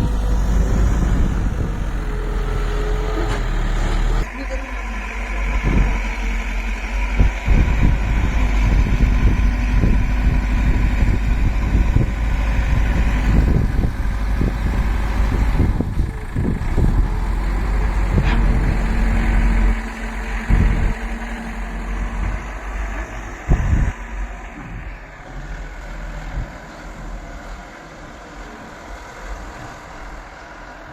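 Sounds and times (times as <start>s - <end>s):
low thumps and rumbles: 0.0s - 4.4s, 5.2s - 24.9s
diesel engine running: 0.0s - 30.9s.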